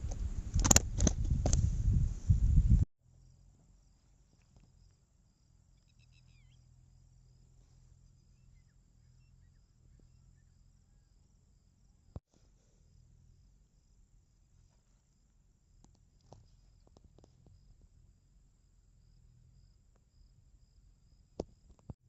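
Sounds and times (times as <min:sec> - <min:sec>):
sharp click: 0:00.5 - 0:01.6
faint low hum: 0:01.6 - 0:22.0
faint chirping: 0:03.1 - 0:21.7.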